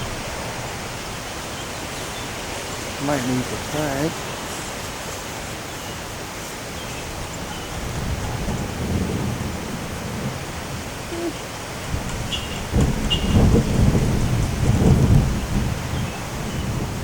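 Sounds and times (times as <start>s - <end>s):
low thunder rumble: 0.0s - 1.4s, 7.0s - 17.0s
steady rain: 0.0s - 17.0s
wind: 0.0s - 17.0s.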